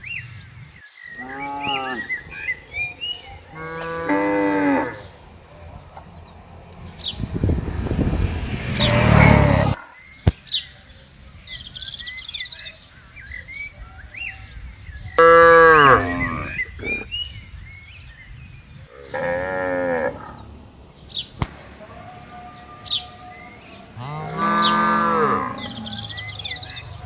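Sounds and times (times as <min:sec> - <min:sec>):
cattle mooing: 0:03.5 - 0:05.2, 0:15.2 - 0:16.6, 0:22.0 - 0:26.6.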